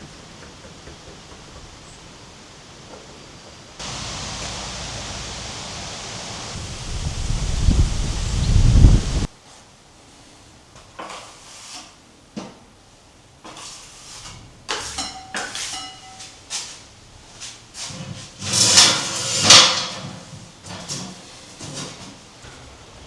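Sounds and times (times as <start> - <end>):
noisy rush: 3.8 - 9.3.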